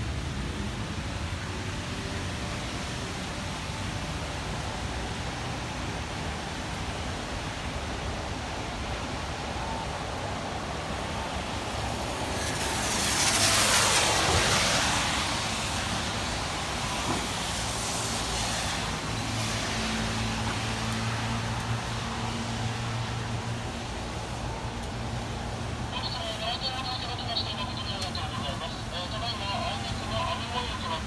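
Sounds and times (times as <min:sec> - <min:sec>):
steady rain hiss: 0:00.0 - 0:31.0
car tyres swishing on wet road: 0:05.0 - 0:26.0.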